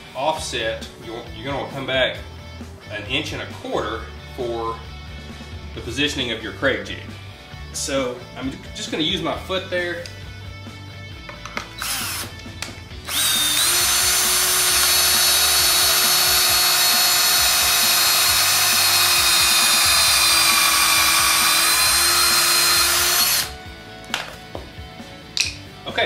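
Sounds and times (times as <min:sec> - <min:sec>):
cordless drill whining: 0:11.7 - 0:23.6.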